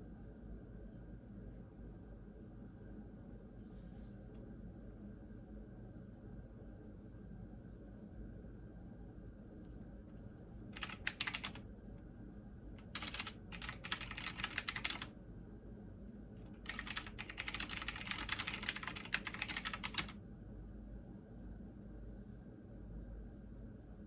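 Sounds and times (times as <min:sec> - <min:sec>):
keyboard typing: 0:10.8 - 0:11.6, 0:12.8 - 0:15.1, 0:16.6 - 0:20.2.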